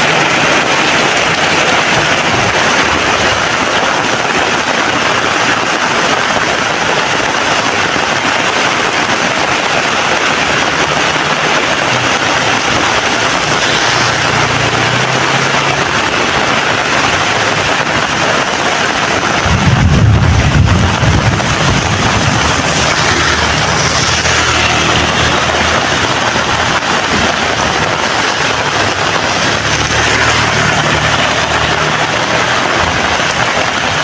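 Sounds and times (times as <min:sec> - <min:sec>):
heavy rain falling: 0:00.0 - 0:34.0
low rumble: 0:19.4 - 0:27.8.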